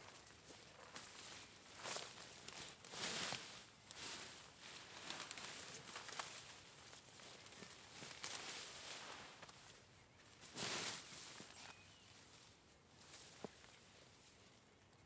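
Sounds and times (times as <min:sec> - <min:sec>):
rustling foliage: 0:00.9 - 0:09.8.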